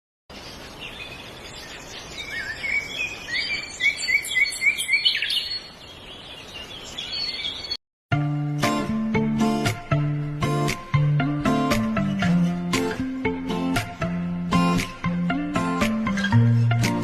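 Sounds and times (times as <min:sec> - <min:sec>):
birds chirping and singing: 0:00.3 - 0:07.8.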